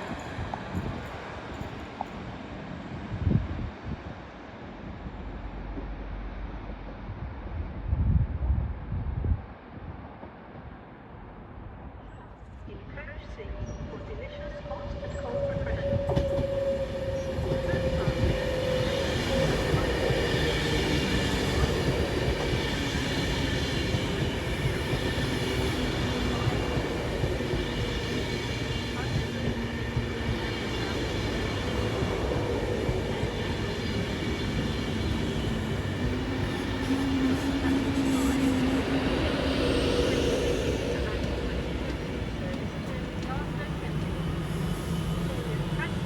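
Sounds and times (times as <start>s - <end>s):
train wheels rumbling: 13.2s - 46.0s.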